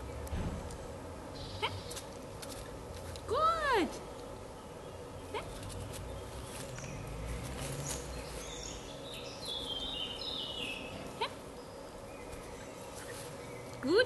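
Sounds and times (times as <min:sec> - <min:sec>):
outdoor background rumble: 0:00.0 - 0:14.0
small bird singing: 0:01.3 - 0:02.0, 0:04.5 - 0:14.0.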